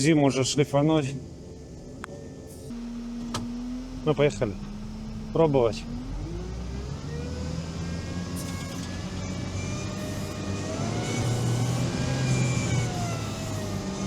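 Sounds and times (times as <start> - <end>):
all-terrain vehicle engine under load: 2.9 - 14.0.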